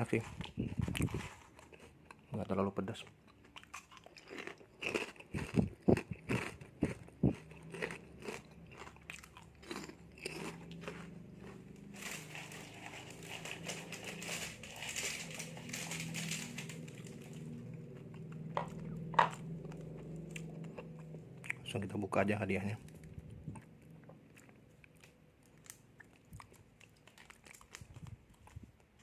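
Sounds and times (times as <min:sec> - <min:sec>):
crunching and chewing crackers: 0:00.0 - 0:29.0.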